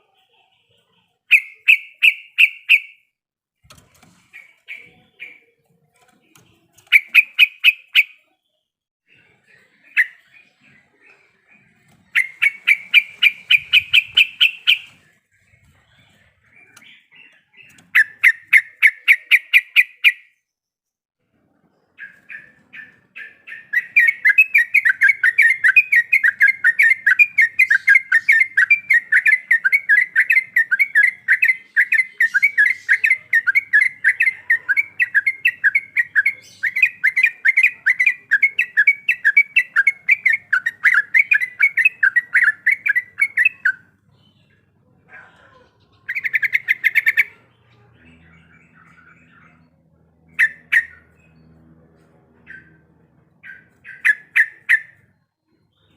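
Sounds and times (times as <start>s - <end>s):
bird chattering calls: 1.3s - 3.0s, 6.8s - 8.3s, 11.6s - 15.1s, 45.8s - 51.2s, 53.4s - 55.0s.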